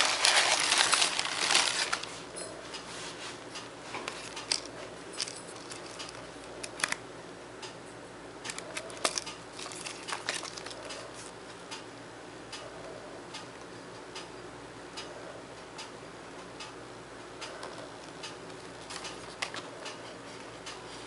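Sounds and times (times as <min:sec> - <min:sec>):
packaging rustling and crinkling: 0:00.0 - 0:02.3, 0:04.0 - 0:07.0, 0:08.5 - 0:11.3
faint steady hum: 0:00.0 - 0:21.0.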